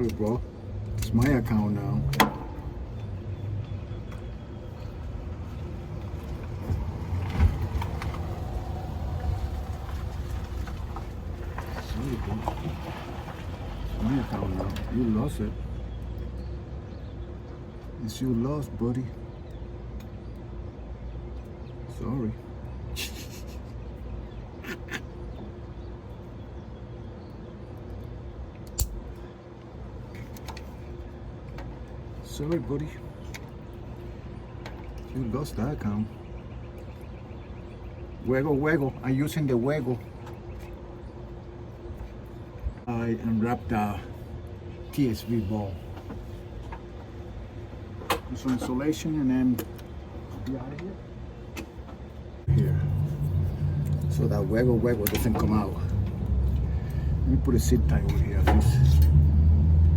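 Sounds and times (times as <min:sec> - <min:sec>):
steady low hum: 0:13.9 - 0:59.9
vehicle driving past: 0:52.5 - 0:59.9.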